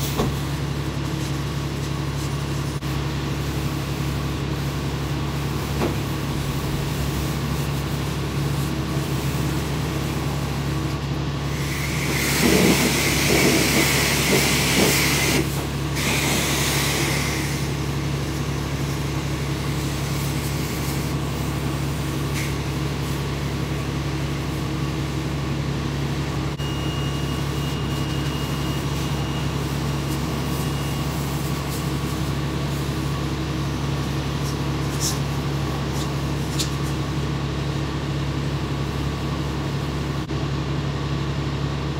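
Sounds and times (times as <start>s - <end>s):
low mechanical hum: 0.0s - 41.9s
car wash wand spraying hiss: 11.5s - 17.9s.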